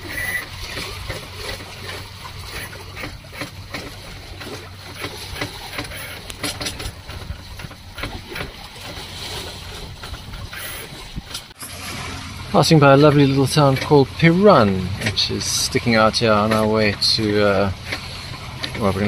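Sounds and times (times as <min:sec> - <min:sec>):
small clicks and splashes: 0:00.0 - 0:11.6, 0:13.1 - 0:19.0
steady low hum: 0:00.0 - 0:19.0
water washing along hull: 0:00.0 - 0:19.0.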